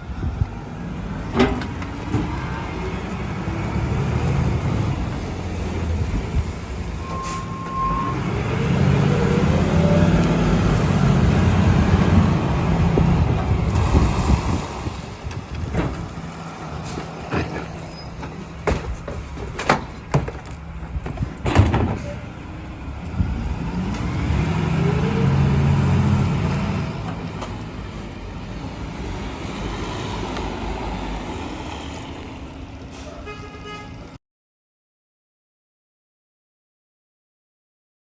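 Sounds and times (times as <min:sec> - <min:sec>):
garbage truck engine revving: 0:08.0 - 0:15.2, 0:22.2 - 0:27.4
metal clanks and knocks: 0:16.9 - 0:22.3.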